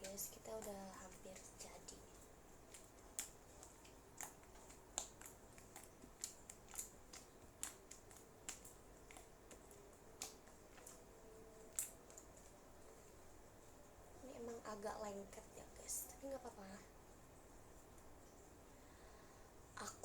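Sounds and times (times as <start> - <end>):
slime clicking and popping: 0.0 - 12.5.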